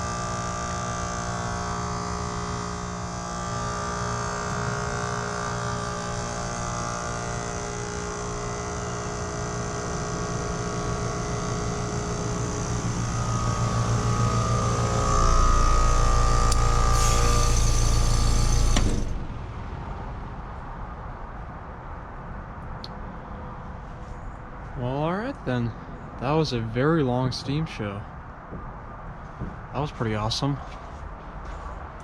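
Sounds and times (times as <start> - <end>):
heat pump compressor humming: 0.0 - 19.5
hissing: 3.7 - 19.4.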